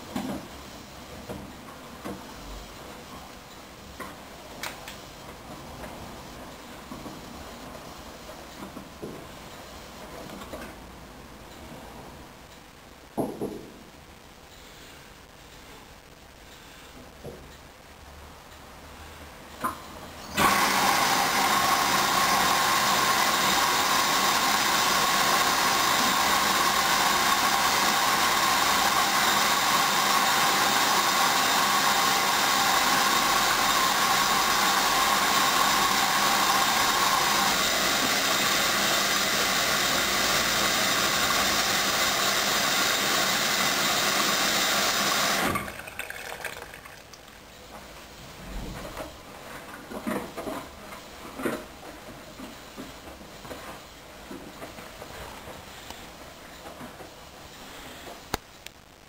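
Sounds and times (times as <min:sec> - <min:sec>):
washing machine filling with water: 0:20.3 - 0:47.4.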